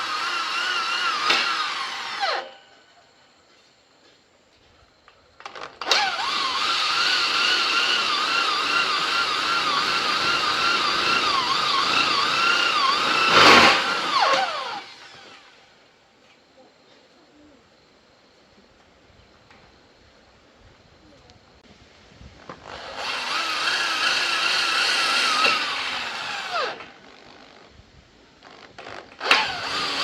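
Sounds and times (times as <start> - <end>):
power tool motor whining: 0.0 - 2.6, 5.8 - 15.7, 22.6 - 27.5, 28.7 - 30.0.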